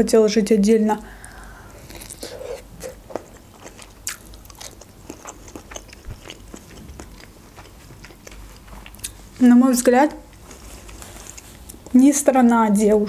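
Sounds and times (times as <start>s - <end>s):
person chewing broccoli: 1.2s - 9.4s, 10.3s - 12.0s.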